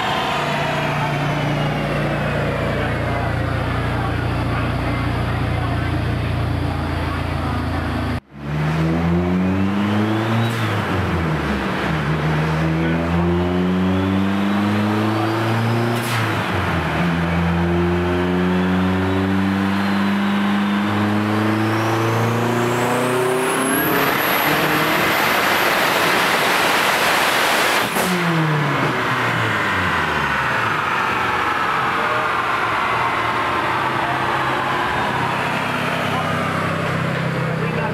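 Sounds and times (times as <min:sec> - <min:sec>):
loud rushing noise: 0:00.0 - 0:04.6, 0:23.3 - 0:37.9
car engine at full throttle: 0:00.0 - 0:37.9.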